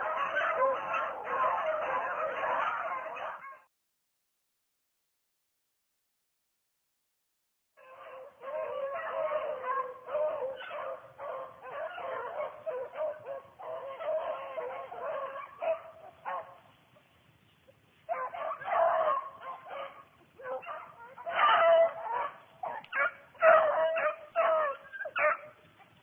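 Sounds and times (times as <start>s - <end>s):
beagles baying and yelping: 0.0s - 3.7s, 7.8s - 26.0s.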